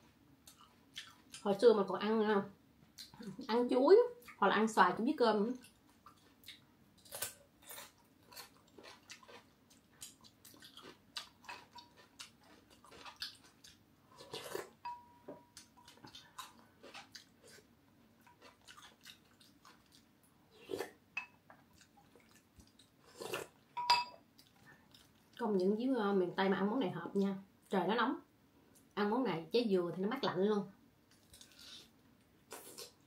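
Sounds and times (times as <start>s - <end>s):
crunchy food chewing: 5.6s - 14.8s, 15.6s - 21.0s, 21.7s - 23.6s, 31.1s - 33.0s
spoon clinking glass bowl: 14.8s - 15.4s, 23.8s - 24.2s.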